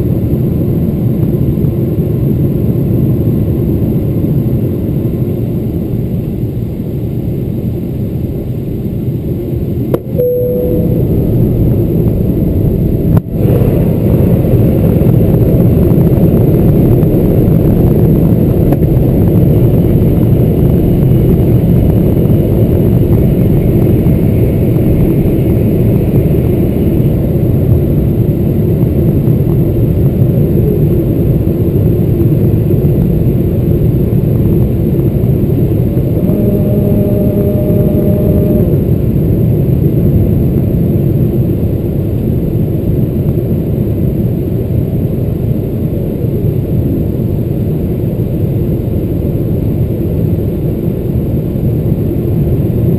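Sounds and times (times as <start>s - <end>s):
aircraft cabin engine rumble: 0.0s - 52.9s
short single tone: 9.9s - 11.8s, 36.1s - 38.9s.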